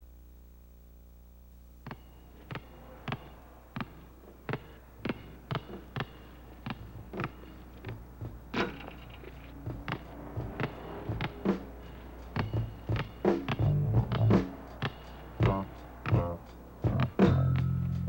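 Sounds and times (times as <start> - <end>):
basketball bouncing on hard floor: 1.8 - 11.6, 12.3 - 16.3, 16.9 - 17.2.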